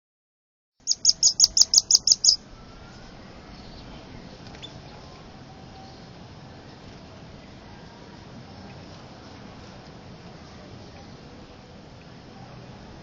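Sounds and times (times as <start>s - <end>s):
bird calling sharp high notes: 0.9s - 2.4s.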